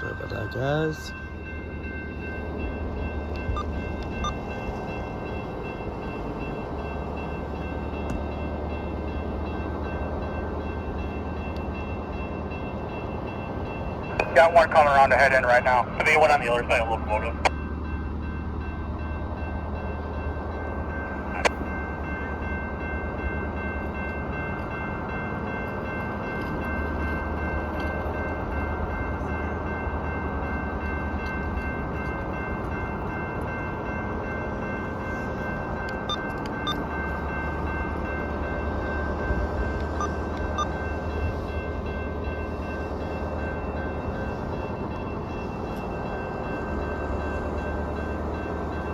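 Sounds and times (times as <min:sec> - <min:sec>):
diesel locomotive idling: 0:00.0 - 0:26.0.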